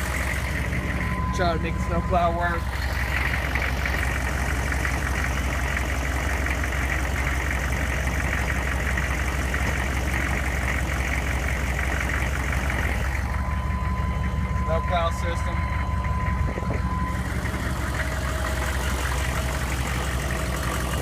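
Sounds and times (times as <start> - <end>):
diesel truck idling: 0.0 - 21.0
hydraulic pump whine: 0.0 - 21.0.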